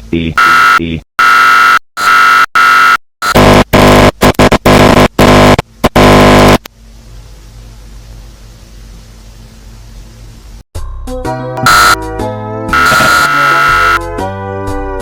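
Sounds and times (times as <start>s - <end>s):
distorted synthesized electronic tones: 0.4s - 6.7s, 11.6s - 12.0s, 12.8s - 14.0s.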